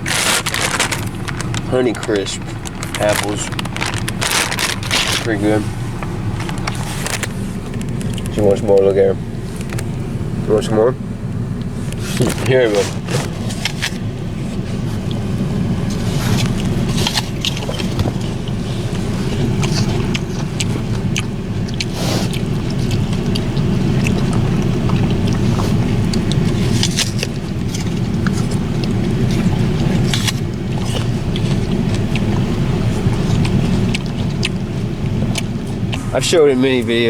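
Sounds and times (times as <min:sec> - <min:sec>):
crunching and chewing apple: 0:00.0 - 0:10.7, 0:11.5 - 0:37.0
car air conditioning hum: 0:00.0 - 0:37.0.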